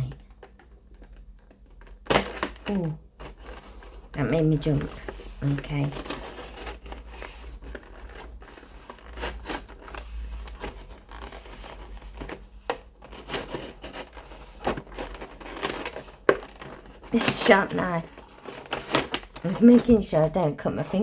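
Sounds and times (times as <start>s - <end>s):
packaging crinkling and crackling: 0.0s - 21.0s.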